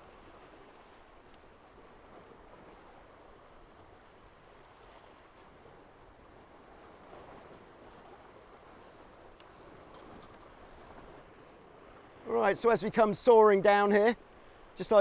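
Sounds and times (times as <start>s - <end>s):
water and wind rushing: 0.0s - 15.0s.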